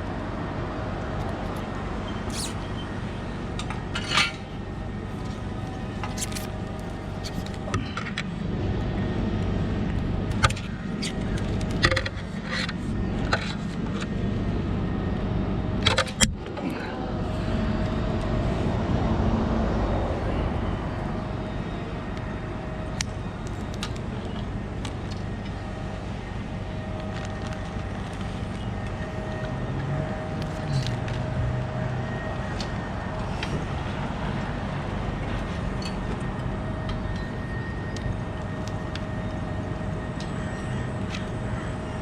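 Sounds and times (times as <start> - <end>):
faint steady whine: 0.0 - 42.0.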